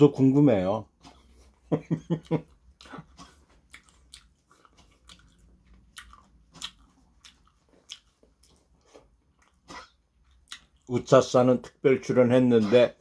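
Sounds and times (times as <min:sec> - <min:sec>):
person chewing with wet smacks: 0:02.1 - 0:11.0.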